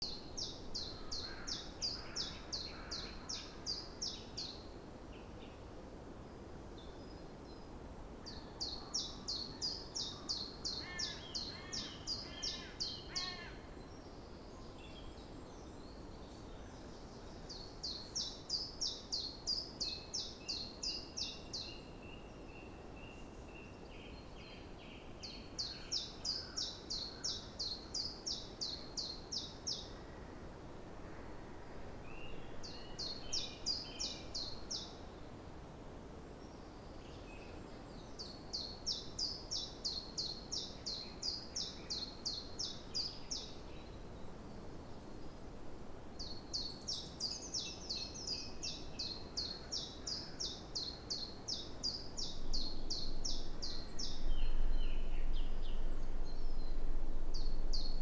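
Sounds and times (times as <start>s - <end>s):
low background hiss: 0.0s - 58.0s
faint bird calls: 8.2s - 13.8s.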